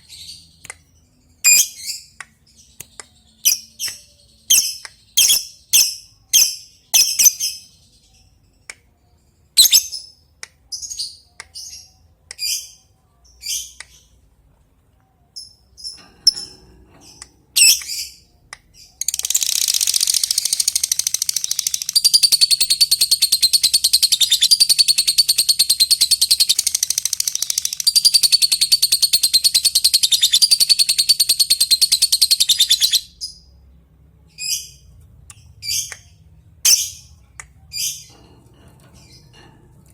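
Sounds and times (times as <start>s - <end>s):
lovebird chirping and chattering: 1.4s - 2.1s, 3.4s - 7.7s, 9.6s - 10.1s, 17.1s - 18.2s, 18.8s - 33.4s.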